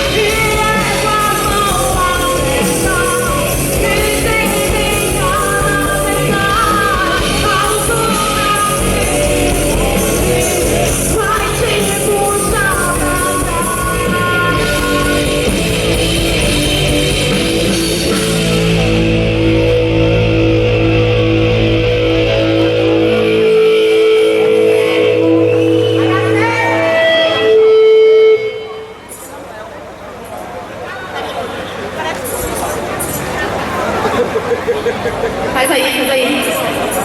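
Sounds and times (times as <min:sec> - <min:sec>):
woman singing: 0:00.0 - 0:15.6
bass guitar: 0:00.0 - 0:29.4
distorted electric guitar: 0:00.0 - 0:29.5
drums: 0:00.0 - 0:37.0.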